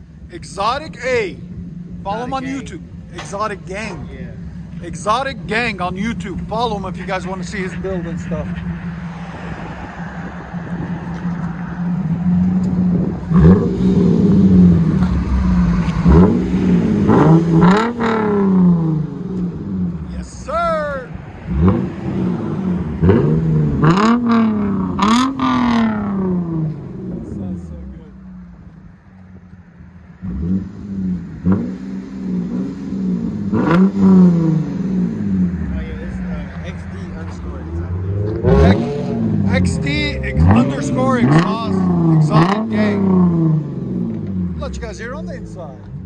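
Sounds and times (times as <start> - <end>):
car engine idling and revving: 0.0 - 46.0.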